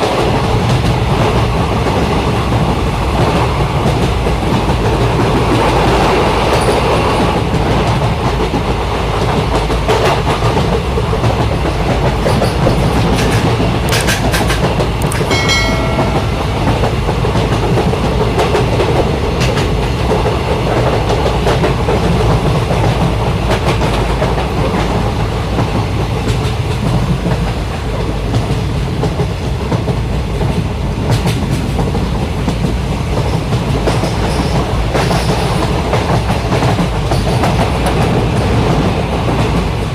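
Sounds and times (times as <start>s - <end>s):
train wheels rumbling on rail: 0.0s - 39.9s
clicks: 13.3s - 16.8s
brief high tone: 15.2s - 17.0s.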